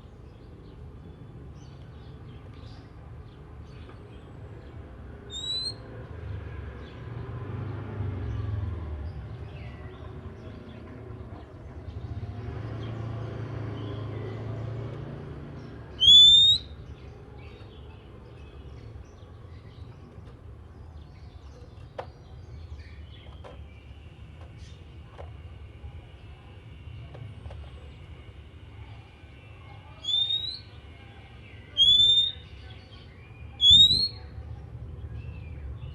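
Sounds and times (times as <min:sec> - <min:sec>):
bird rising whistle: 0:05.3 - 0:05.8, 0:16.0 - 0:16.7, 0:30.0 - 0:30.7, 0:31.8 - 0:32.4, 0:33.6 - 0:34.2
bird chirps: 0:05.3 - 0:05.9, 0:15.9 - 0:19.9, 0:29.6 - 0:34.4.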